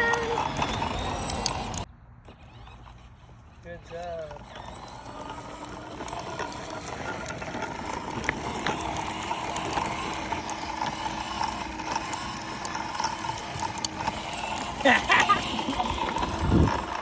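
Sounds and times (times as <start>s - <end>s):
scattered clicks: 0.0s - 1.9s
dirt bike drive whirring rattle: 0.0s - 17.0s.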